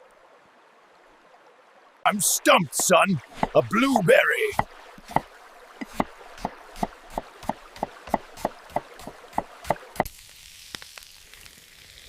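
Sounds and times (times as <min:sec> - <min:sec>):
knife chopping on cutting board: 0:04.6 - 0:10.1.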